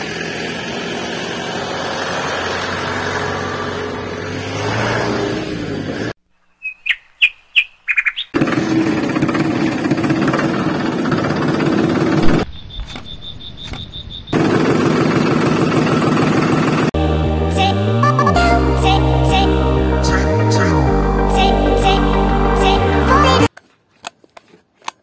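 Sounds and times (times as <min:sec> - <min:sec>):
vehicle engine running: 0:00.0 - 0:06.2, 0:08.4 - 0:12.4, 0:14.4 - 0:23.5
bird chirps: 0:06.3 - 0:08.4, 0:12.4 - 0:14.4
music: 0:17.0 - 0:23.5.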